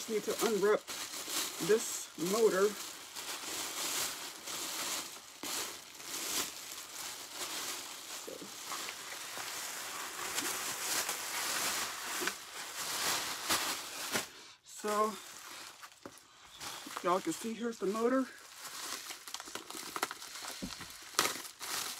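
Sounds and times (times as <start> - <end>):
newspaper crinkling: 0.0 - 21.9.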